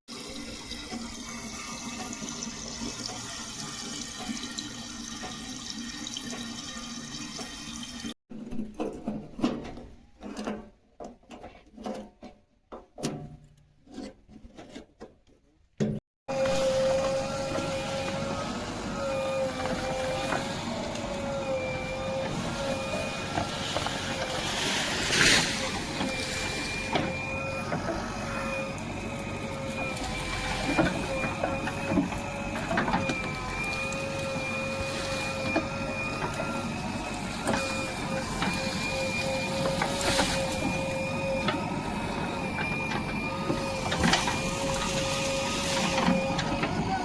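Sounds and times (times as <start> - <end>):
diesel machinery running with whine: 16.3 - 47.0.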